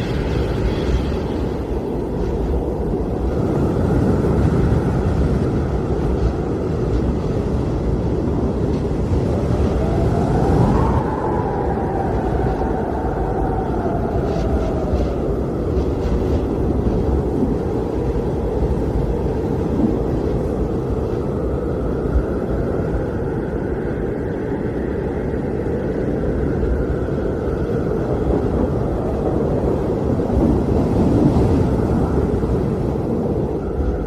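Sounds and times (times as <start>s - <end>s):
blizzard wind blowing: 0.0s - 34.0s.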